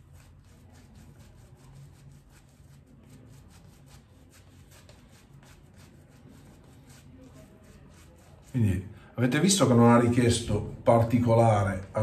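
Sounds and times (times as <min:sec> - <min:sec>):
shaving brush swishing: 0:00.0 - 0:08.8.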